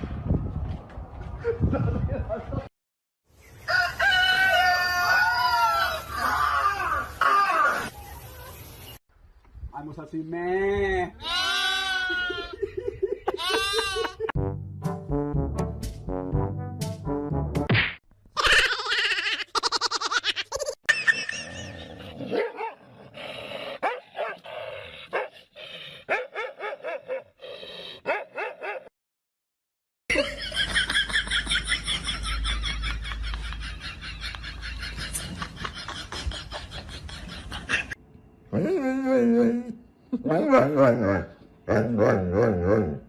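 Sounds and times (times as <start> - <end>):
dogs barking: 22.3 - 22.8, 23.8 - 24.5, 25.1 - 25.4, 26.0 - 27.4, 28.0 - 28.9.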